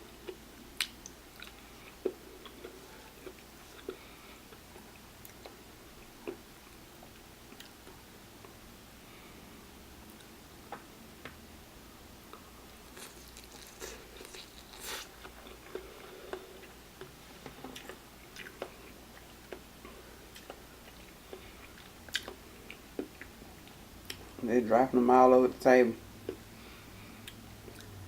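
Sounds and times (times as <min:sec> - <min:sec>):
wet chewing and mouth smacks: 0:00.2 - 0:06.4, 0:12.9 - 0:24.3.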